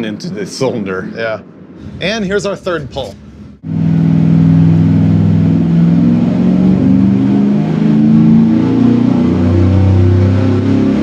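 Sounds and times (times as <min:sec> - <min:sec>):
engine at full throttle: 0:03.4 - 0:11.0.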